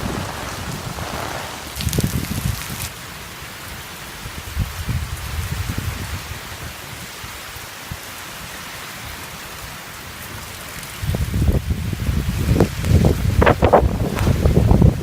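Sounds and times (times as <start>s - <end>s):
wind buffeting microphone: 0.0s - 3.1s, 11.0s - 15.0s
rain falling: 0.0s - 15.0s.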